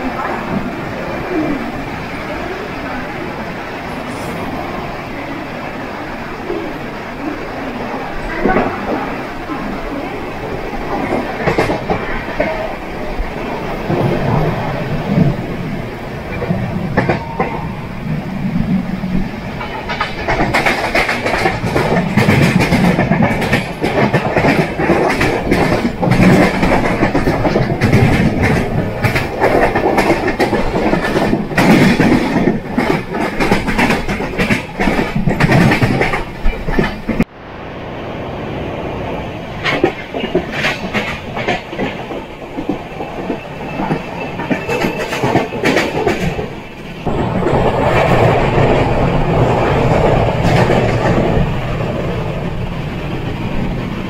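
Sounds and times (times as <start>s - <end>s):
train running noise: 0.0s - 54.0s
wheels clattering over rails: 18.7s - 37.3s, 39.6s - 54.0s.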